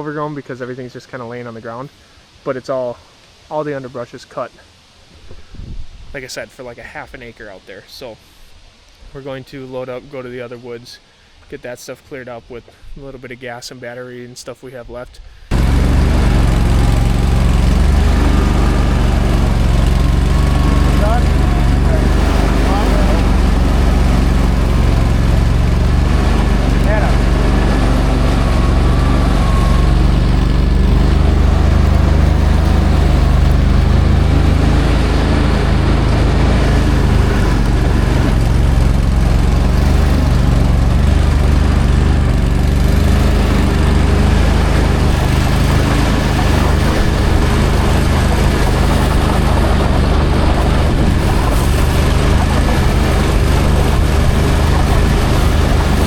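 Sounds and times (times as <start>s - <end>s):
vehicle engine droning: 15.5s - 56.0s.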